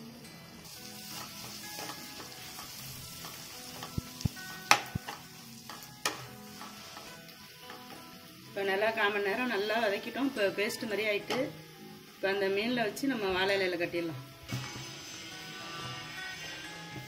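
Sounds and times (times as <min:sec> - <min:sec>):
masala sizzling in oil: 0:00.0 - 0:17.0
spatula clacking against pan: 0:01.4 - 0:07.1.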